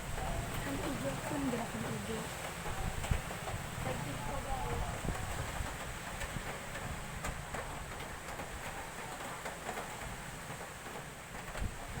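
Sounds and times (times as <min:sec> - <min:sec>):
strong wind buffeting microphone: 0:02.6 - 0:08.7, 0:11.5 - 0:12.0.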